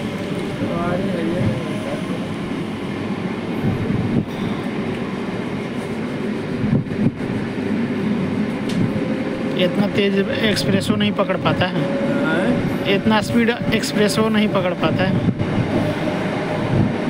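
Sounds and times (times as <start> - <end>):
train wheels on rails: 0.0 - 17.0
rush of air: 3.5 - 9.1.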